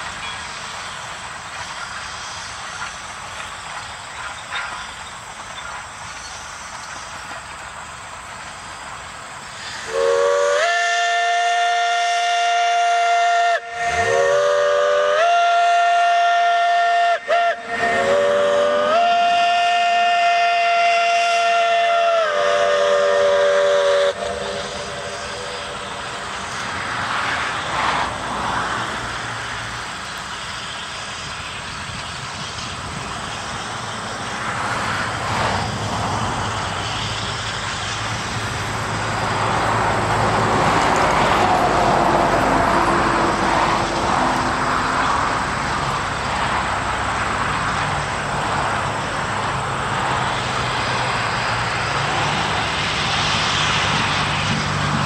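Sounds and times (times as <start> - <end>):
train rumbling: 0.0 - 55.0
steam locomotive whistle blasts: 9.6 - 26.6.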